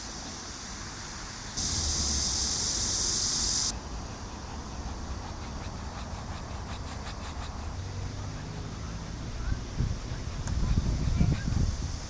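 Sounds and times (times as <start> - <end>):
high-pitched hiss: 0.0 - 4.7.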